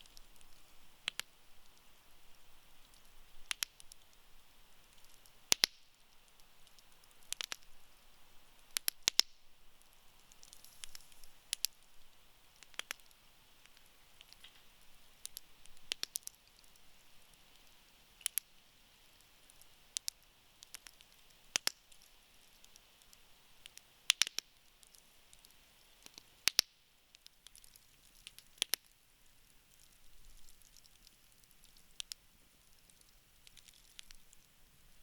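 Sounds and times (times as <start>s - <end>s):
campfire crackling: 0.0s - 35.0s.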